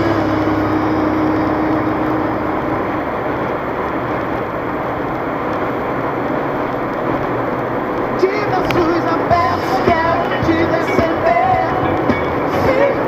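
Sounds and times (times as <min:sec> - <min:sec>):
road and tyre noise in car: 0:00.0 - 0:13.0.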